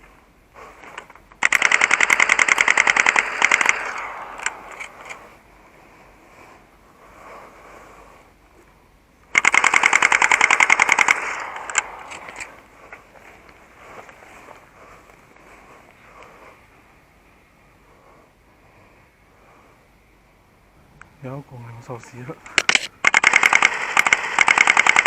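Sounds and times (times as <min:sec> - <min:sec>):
airsoft gun full-auto bursts: 0:01.4 - 0:05.2, 0:09.3 - 0:12.6, 0:22.6 - 0:25.0
airsoft gun single shots: 0:01.4 - 0:05.2, 0:09.4 - 0:12.6.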